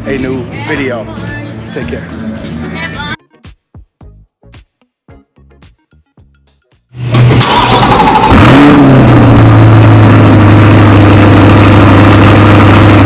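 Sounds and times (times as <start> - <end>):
car engine starting and idling: 7.0 - 13.0.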